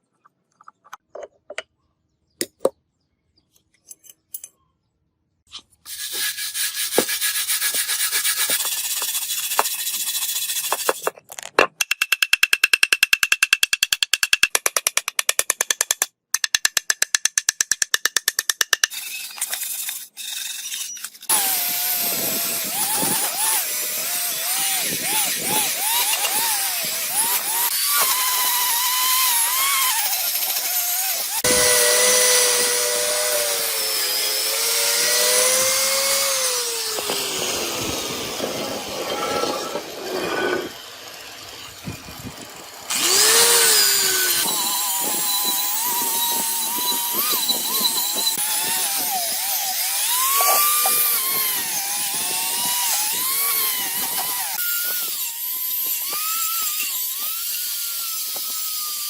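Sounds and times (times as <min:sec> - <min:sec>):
power tool whining on metal: 0:18.9 - 0:59.0.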